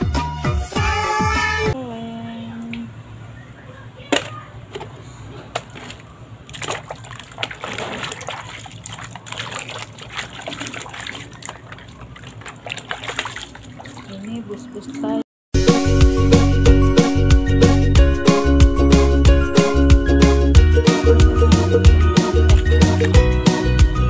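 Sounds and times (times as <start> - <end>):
water splashing and sloshing: 4.2 - 15.2, 20.9 - 23.3.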